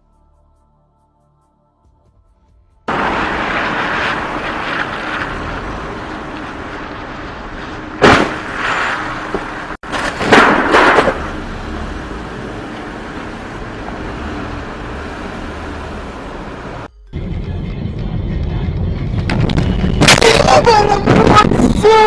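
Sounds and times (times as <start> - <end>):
loud bang: 2.9 - 12.0
loud crashing noise: 2.9 - 16.9
car road and engine noise: 2.9 - 22.0.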